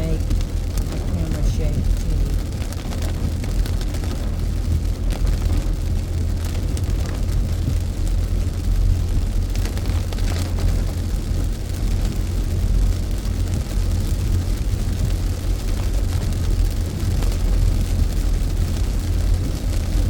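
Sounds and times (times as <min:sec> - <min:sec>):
car road rumble: 0:00.0 - 0:20.0
rain on car: 0:00.0 - 0:20.0.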